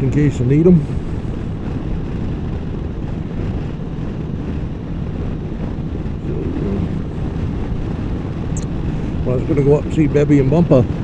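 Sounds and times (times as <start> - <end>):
motorcycle engine drone: 0.0 - 11.0
wind rushing over microphone: 0.0 - 11.0.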